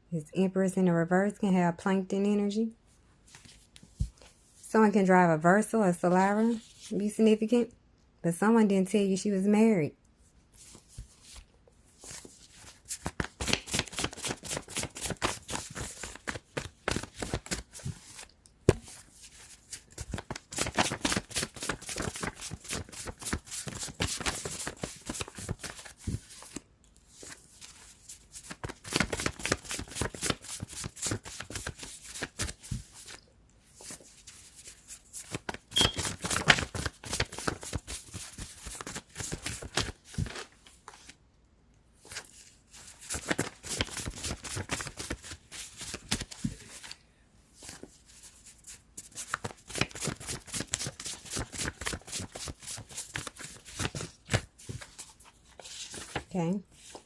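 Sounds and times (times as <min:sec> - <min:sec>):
cards riffling and rustling: 0:10.7 - 0:41.2.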